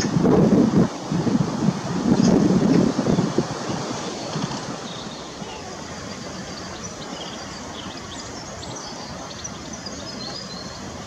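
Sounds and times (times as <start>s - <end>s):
outdoor background noise: 0.0s - 11.0s
faint high bird chirps: 4.0s - 11.0s.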